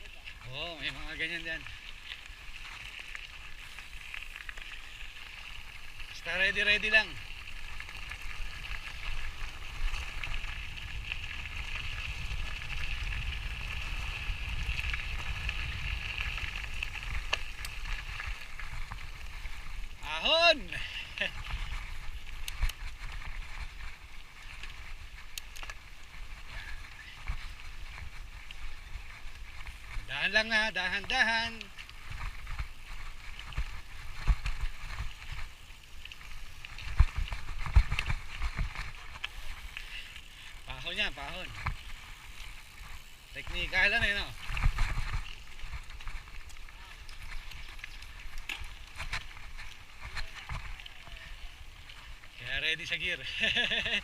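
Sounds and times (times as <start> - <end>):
constant high hiss: 0.0 - 54.0
wind buffeting microphone: 8.1 - 20.0.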